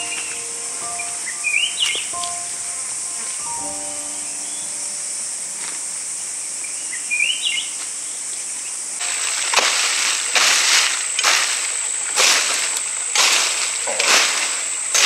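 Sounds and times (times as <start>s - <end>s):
rising bird chirp: 0.0s - 8.8s
high-pitched insect drone: 0.0s - 8.9s.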